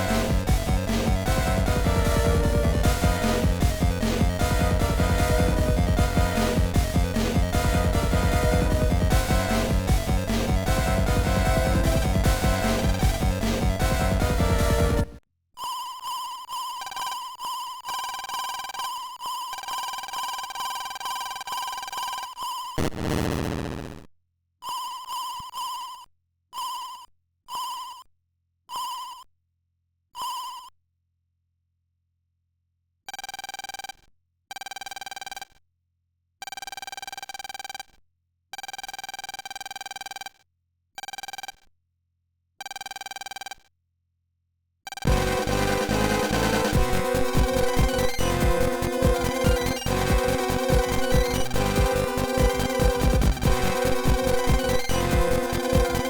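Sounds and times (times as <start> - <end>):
loud noisy burst: 0.0 - 15.1, 45.1 - 56.0.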